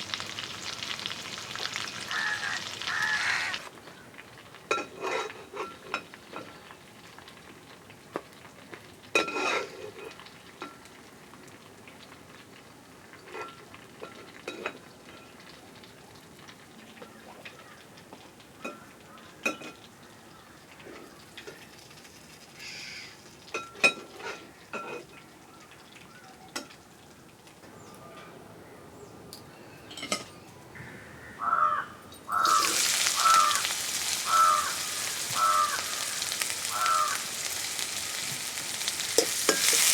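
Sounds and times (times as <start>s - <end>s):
food sizzling in hot oil: 0.0s - 3.7s, 32.3s - 39.9s
crows cawing: 1.0s - 3.7s, 17.5s - 17.9s, 22.6s - 23.2s, 30.8s - 38.5s
utensil clinking in pan: 32.2s - 39.9s.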